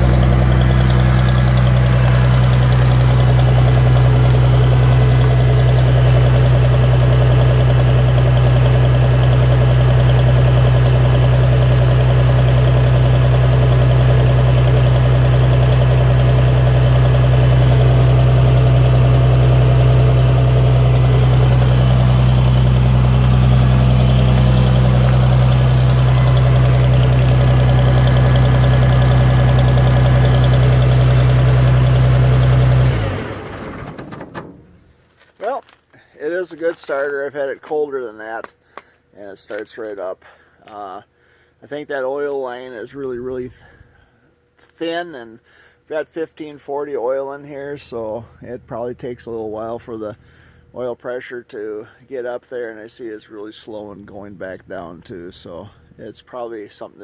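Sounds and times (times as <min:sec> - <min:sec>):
tractor engine running: 0:00.0 - 0:35.3, 0:47.5 - 0:50.8.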